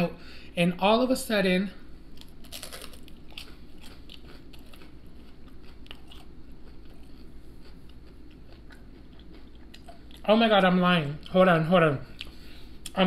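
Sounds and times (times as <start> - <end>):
crisp crunchy chewing: 2.2 - 10.6.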